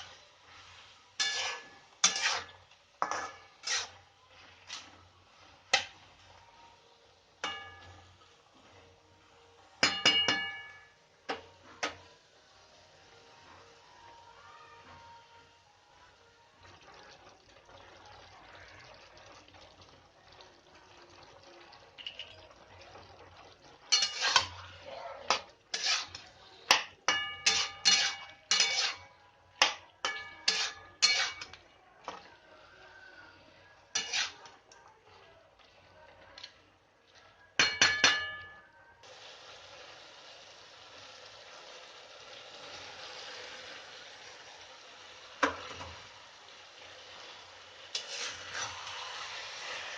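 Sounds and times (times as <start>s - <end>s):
spoon clinking on metal pot: 1.2s - 3.9s, 7.4s - 8.1s, 9.8s - 12.0s, 23.9s - 24.6s, 25.3s - 31.6s, 37.6s - 38.7s.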